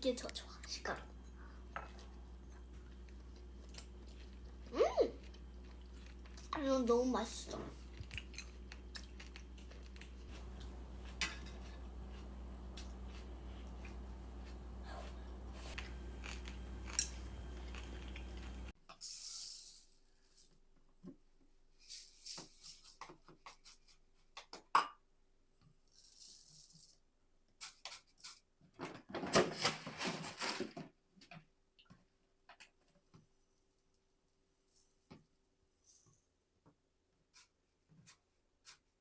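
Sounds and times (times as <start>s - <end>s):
low steady hum: 0.0s - 18.8s
packaging rustling and tearing: 29.3s - 30.9s.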